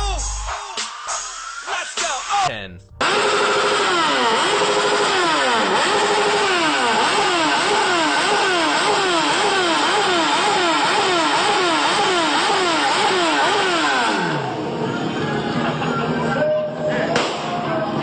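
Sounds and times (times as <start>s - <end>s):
motorcycle engine revving: 2.9s - 14.9s.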